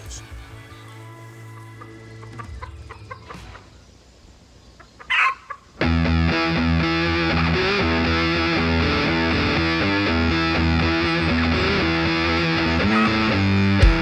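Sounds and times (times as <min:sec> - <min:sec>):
guitar-led background music: 0:00.0 - 0:03.6, 0:05.8 - 0:14.0
hen clucking: 0:04.7 - 0:05.8
hen squawking: 0:12.8 - 0:13.7.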